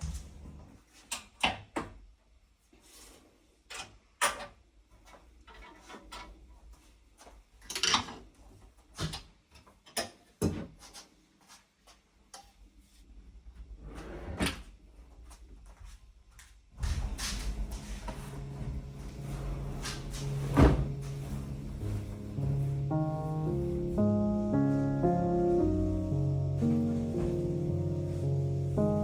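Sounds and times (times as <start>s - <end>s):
object scraping: 17.0s - 29.0s.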